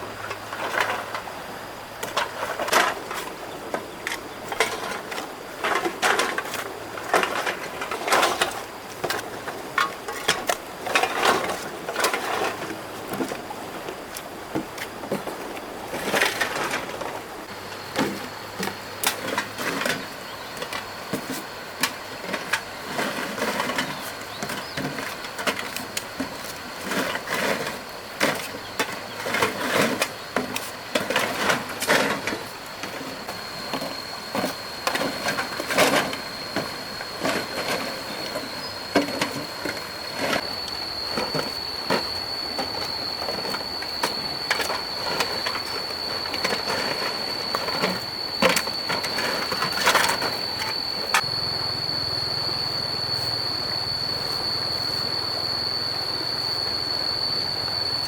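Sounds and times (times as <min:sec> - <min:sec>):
thin steady high tone: 0:15.8 - 0:58.0.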